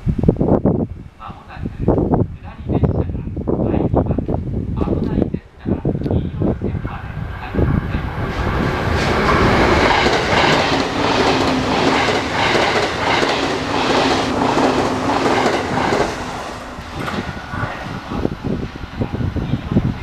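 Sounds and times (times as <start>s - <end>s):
train wheels clattering over joints: 8.8s - 16.2s.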